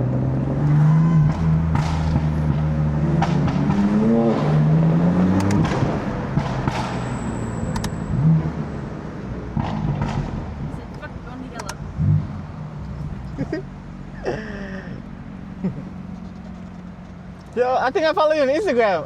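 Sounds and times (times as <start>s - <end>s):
car engine running and revving: 0.0s - 19.0s
sharp clicks: 5.3s - 5.9s, 6.6s - 8.1s, 10.8s - 11.8s.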